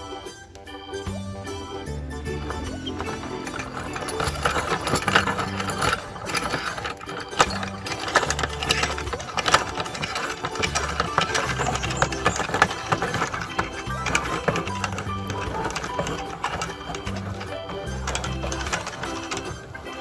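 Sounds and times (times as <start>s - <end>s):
background music with bass line: 0.0s - 6.2s
meat grinder running: 1.8s - 20.0s.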